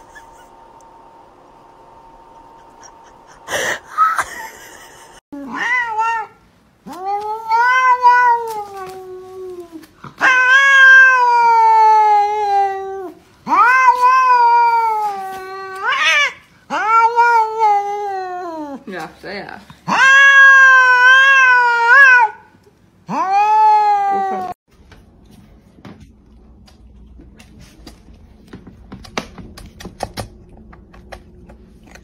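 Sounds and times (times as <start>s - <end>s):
cat meowing: 5.4s - 9.6s, 10.2s - 18.4s, 19.9s - 22.4s.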